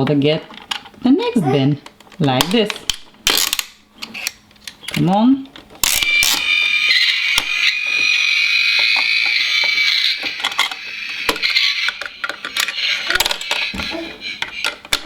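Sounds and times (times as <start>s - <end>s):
plastic toy clicks and rattles: 2.0s - 5.1s, 8.8s - 15.0s
toy electronic sound effect: 5.9s - 15.0s.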